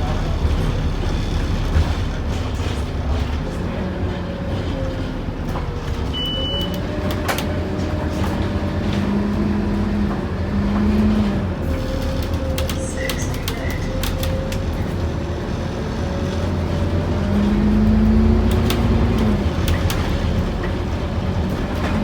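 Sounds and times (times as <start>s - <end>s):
bus diesel engine rumble: 0.0s - 22.0s
short electronic beep: 6.1s - 6.8s.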